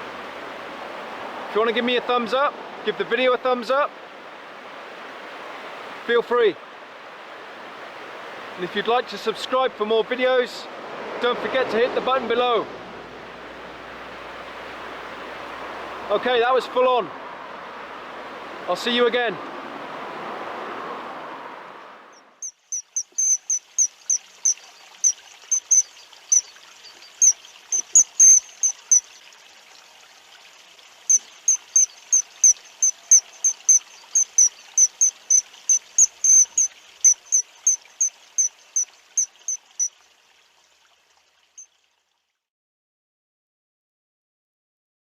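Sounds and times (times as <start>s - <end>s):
faint steady hiss: 0.0s - 19.4s, 20.9s - 41.9s
high-pitched chirps: 22.2s - 29.1s, 31.1s - 39.9s.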